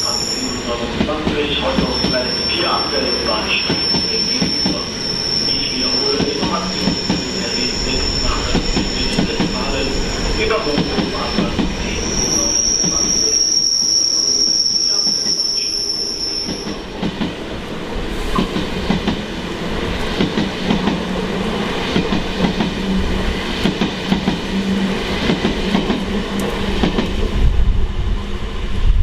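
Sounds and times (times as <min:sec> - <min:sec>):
train wheel squeal: 0:00.0 - 0:16.9
train wheels clattering on rails: 0:08.3 - 0:09.8, 0:23.5 - 0:24.5.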